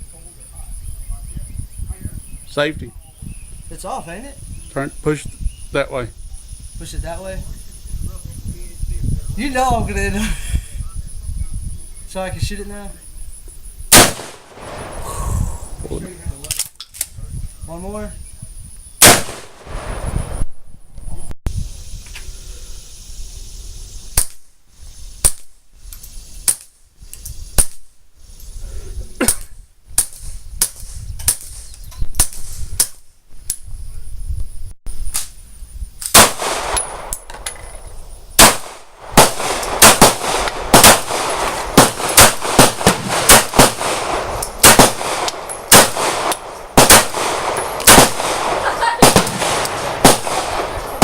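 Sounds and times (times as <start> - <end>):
gunshots: 13.9 - 15.3, 19.0 - 20.4, 36.1 - 37.7, 38.4 - 51.0.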